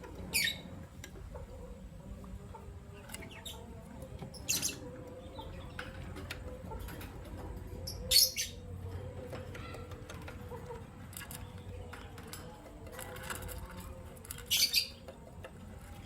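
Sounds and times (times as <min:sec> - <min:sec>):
lovebirds shrill calls: 0:00.3 - 0:00.7, 0:07.9 - 0:08.6, 0:14.4 - 0:15.0.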